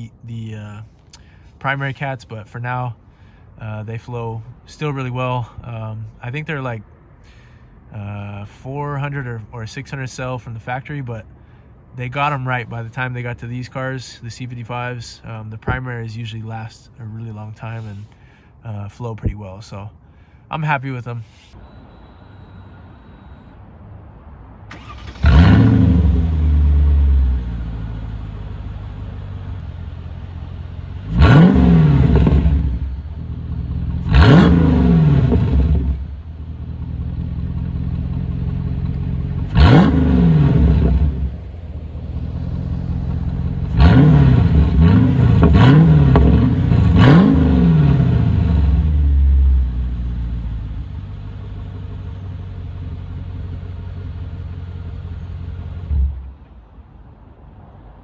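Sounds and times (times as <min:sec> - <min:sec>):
engine starting and idling: 0:24.7 - 0:26.7
engine revving: 0:24.7 - 0:27.9, 0:31.0 - 0:36.1, 0:38.0 - 0:41.5, 0:42.2 - 0:49.9.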